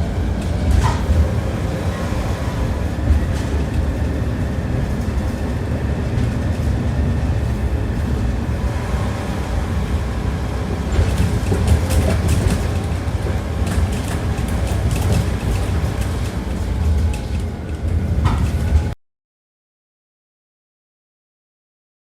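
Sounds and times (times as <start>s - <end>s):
tram rumbling on track: 0.0s - 19.0s
wheels knocking over rail joints: 10.8s - 17.4s.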